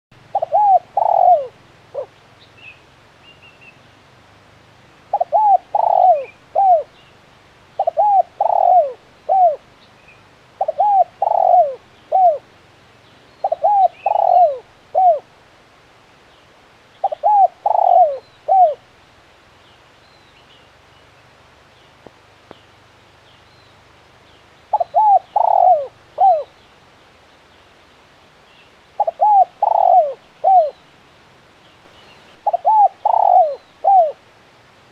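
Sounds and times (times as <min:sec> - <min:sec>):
dove cooing: 0:00.2 - 0:02.2, 0:05.1 - 0:07.0, 0:07.8 - 0:09.7, 0:10.6 - 0:12.5, 0:13.4 - 0:15.3, 0:17.0 - 0:18.8, 0:24.7 - 0:26.6, 0:29.0 - 0:30.8, 0:32.4 - 0:34.2
small birds chirping: 0:05.1 - 0:15.2, 0:16.2 - 0:18.8, 0:19.6 - 0:34.2.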